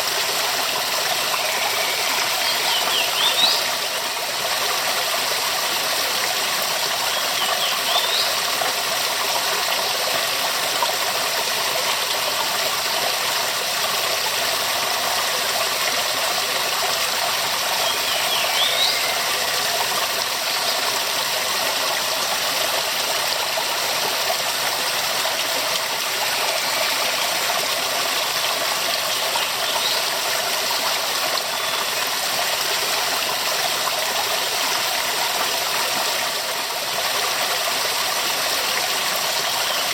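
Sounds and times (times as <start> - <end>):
waterfall rushing: 0.7 - 4.1, 17.8 - 30.0.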